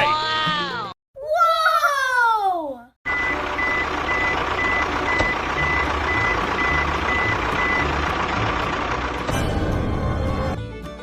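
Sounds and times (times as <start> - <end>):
reversing alarm beeping: 3.1 - 8.0
engine rumble: 3.1 - 10.7.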